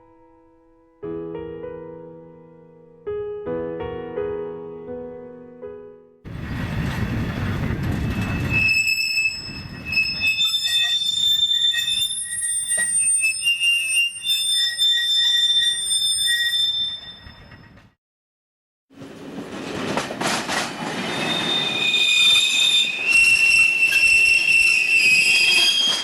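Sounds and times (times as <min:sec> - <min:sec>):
low rumble of rolling wagons: 0:06.3 - 0:13.2, 0:19.0 - 0:26.0
wagon wheels screeching in rail brake: 0:06.3 - 0:17.9, 0:19.0 - 0:26.0.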